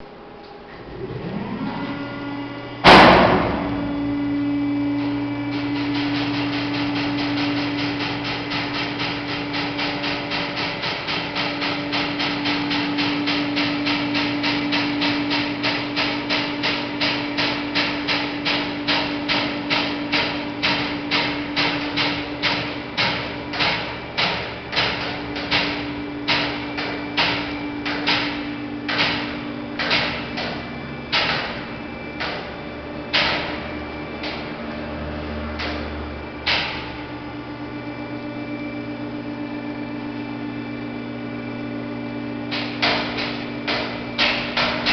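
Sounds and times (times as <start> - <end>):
hydraulic pump motor humming: 0.0 - 44.9
loud bang: 2.8 - 4.2.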